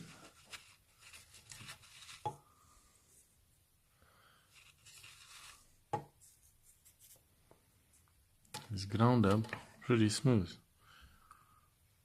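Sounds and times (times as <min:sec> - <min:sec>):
soft rustle: 0:00.0 - 0:03.5, 0:04.4 - 0:08.2
faint rubbing and handling noises: 0:00.0 - 0:03.6, 0:04.3 - 0:10.1.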